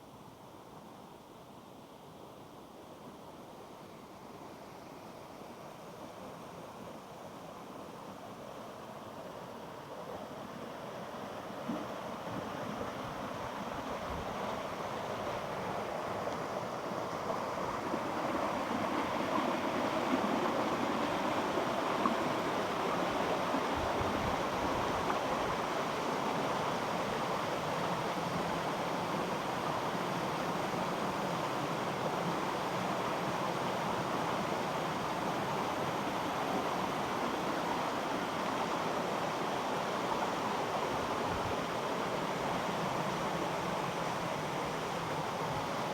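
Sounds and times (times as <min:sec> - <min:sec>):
rushing mountain water: 0:13.4 - 0:45.9.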